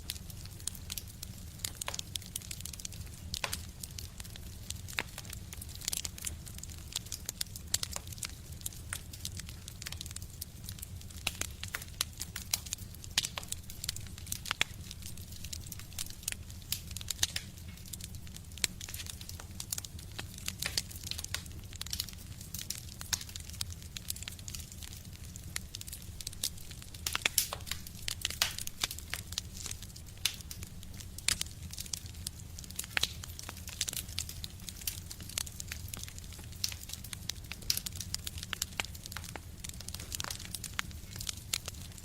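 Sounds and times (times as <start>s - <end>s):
wood fire crackling in a stove: 0.0s - 42.0s.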